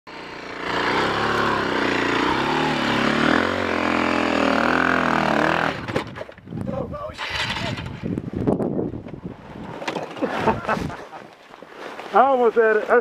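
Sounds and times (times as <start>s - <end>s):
dirt bike engine revving: 0.1s - 6.2s, 7.2s - 8.1s.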